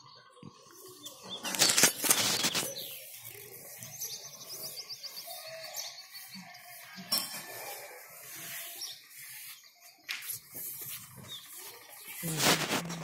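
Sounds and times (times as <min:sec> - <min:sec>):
small birds chirping: 0:00.0 - 0:13.0
rapid high bird trill: 0:01.0 - 0:09.9.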